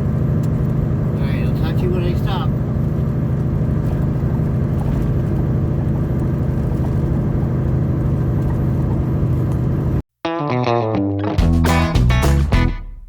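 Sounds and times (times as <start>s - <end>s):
road noise: 0.0s - 10.0s
truck diesel engine hum: 0.0s - 10.0s, 11.4s - 13.0s.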